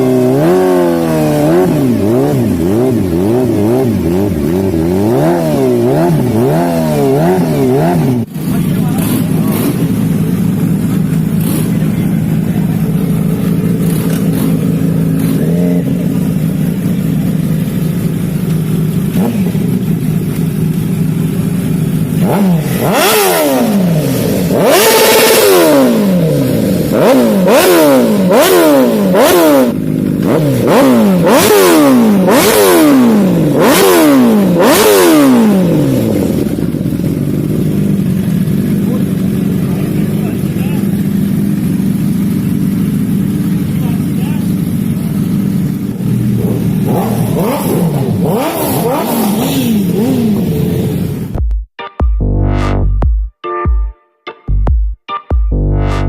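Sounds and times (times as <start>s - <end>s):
motorcycle engine idling and revving: 0.0s - 51.7s.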